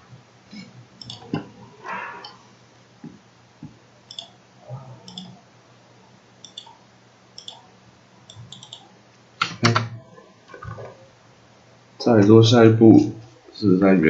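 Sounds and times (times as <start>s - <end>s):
computer mouse buttons clicking: 1.0s - 1.4s, 4.1s - 4.4s, 5.1s - 5.4s, 6.4s - 6.8s, 7.4s - 7.6s, 8.3s - 9.8s.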